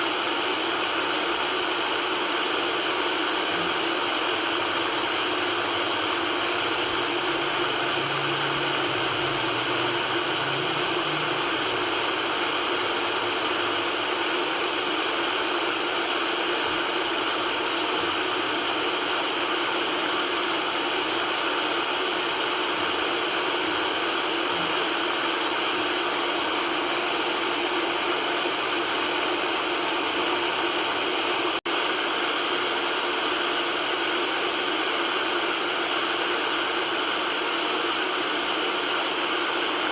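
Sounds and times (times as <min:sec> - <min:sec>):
white noise hiss: 0:05.0 - 0:13.8.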